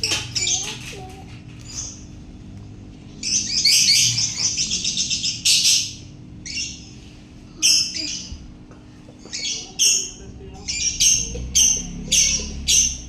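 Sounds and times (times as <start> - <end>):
lovebird chattering: 9.2 - 13.0.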